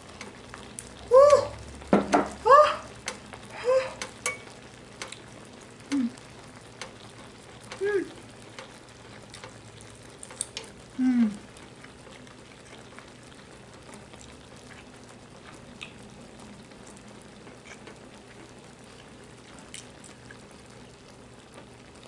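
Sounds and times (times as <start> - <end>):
quiet chewing: 3.1 - 20.7
person murmuring mm: 3.5 - 4.0, 5.9 - 6.3, 7.8 - 8.3, 10.9 - 11.5.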